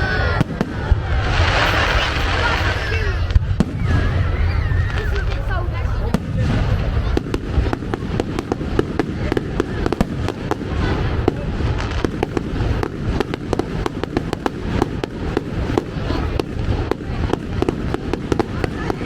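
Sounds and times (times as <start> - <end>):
fireworks bangs and crackling: 0.0 - 19.0
low rumble of explosions: 0.0 - 19.0.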